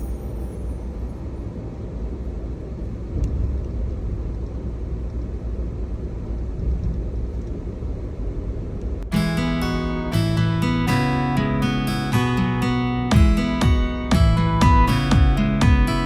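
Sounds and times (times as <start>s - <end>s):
car rumbling on the move: 0.6s - 9.1s.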